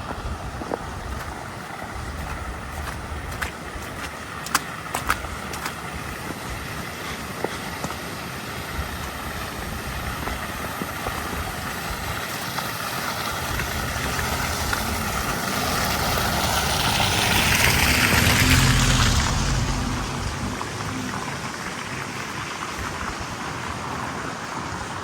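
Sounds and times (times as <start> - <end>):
tyre noise on snow: 0.0 - 11.9
vehicle engine approaching: 13.2 - 25.0.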